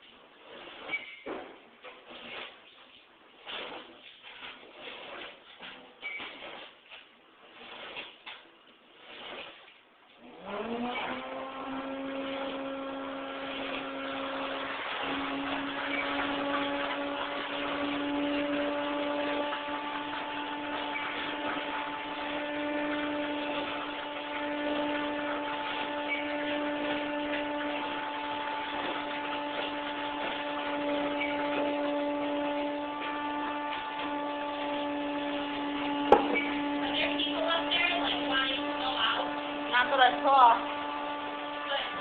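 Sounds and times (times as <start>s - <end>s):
motor humming: 10.2s - 42.0s.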